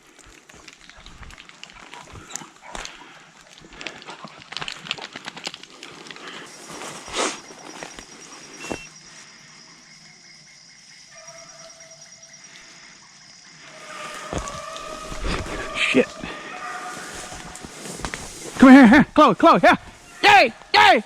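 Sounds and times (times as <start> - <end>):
dog rustling through dry brush: 16.6 - 18.6.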